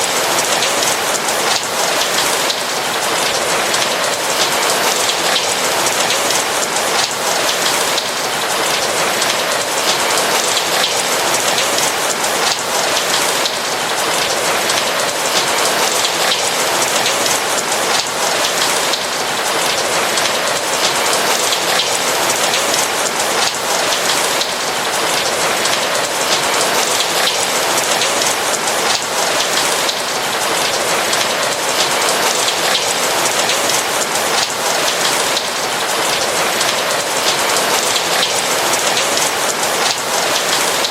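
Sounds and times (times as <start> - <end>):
rain pattering on a roof: 0.0 - 40.9.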